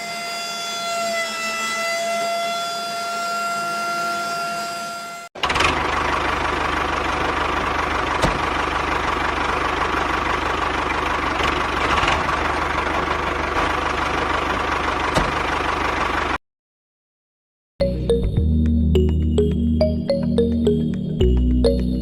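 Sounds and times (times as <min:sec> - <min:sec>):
tractor engine idling: 0:05.4 - 0:16.4.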